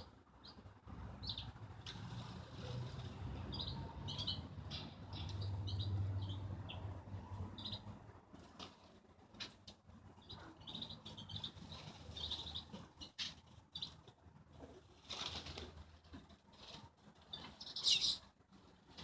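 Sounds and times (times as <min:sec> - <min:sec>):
birds fluttering wings: 0:01.8 - 0:03.4, 0:14.5 - 0:19.0
short high bird chirps: 0:17.6 - 0:18.2.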